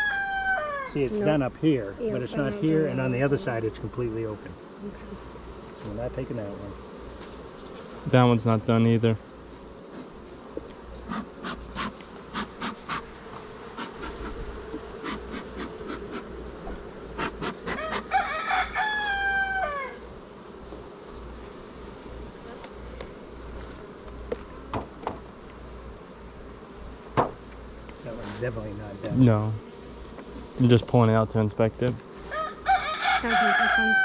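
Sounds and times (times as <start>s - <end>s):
rooster crowing: 0.0s - 1.0s, 17.7s - 20.0s, 32.3s - 34.0s
honeybees buzzing: 0.0s - 34.0s.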